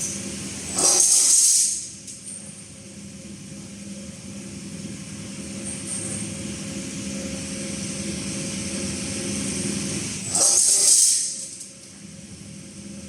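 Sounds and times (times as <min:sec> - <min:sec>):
machine humming and hissing: 0:00.0 - 0:13.0.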